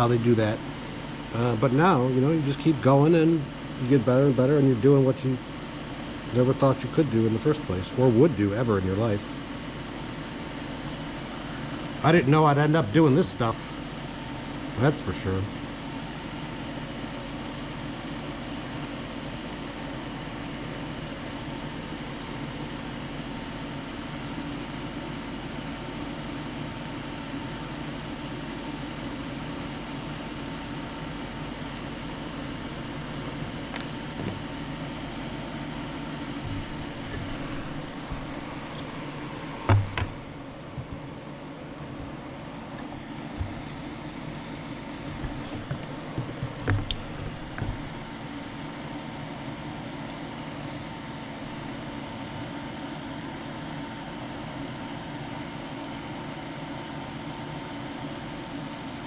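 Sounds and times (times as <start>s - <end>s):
faint whine: 0.0s - 52.7s
mechanical fan hum: 0.0s - 59.0s
loud thump: 39.6s - 41.0s.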